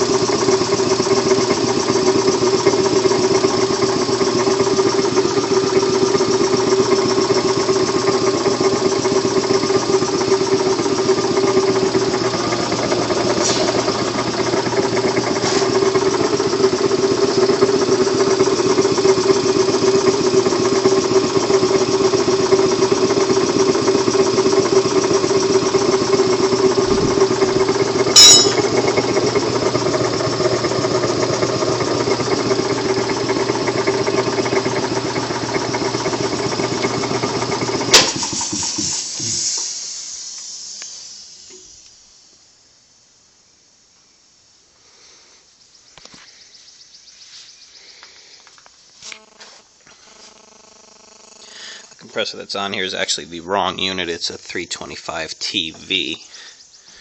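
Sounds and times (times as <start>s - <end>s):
air compressor running: 0.0s - 42.5s, 47.7s - 57.0s
sharp loud clack: 28.2s - 28.7s, 37.9s - 38.6s.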